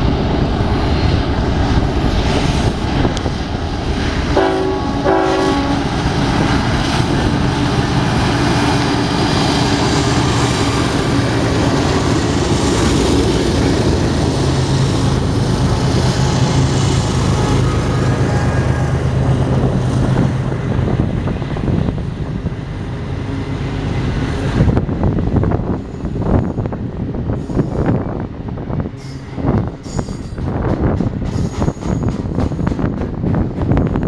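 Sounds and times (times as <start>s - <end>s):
train passing with rumble: 0.0s - 34.0s
locomotive horn blasts: 4.4s - 6.0s, 17.7s - 19.2s.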